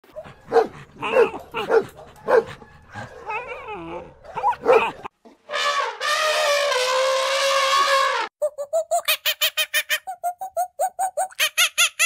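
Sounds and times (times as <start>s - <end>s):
dog whining: 3.0s - 5.1s.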